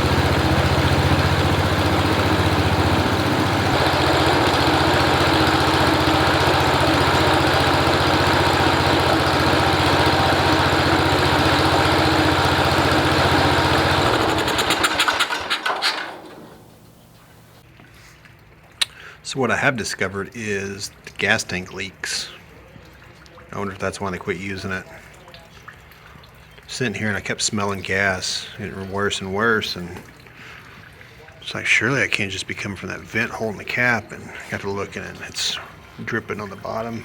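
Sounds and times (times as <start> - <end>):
garden tractor engine running: 0.0 - 17.6, 27.4 - 37.0.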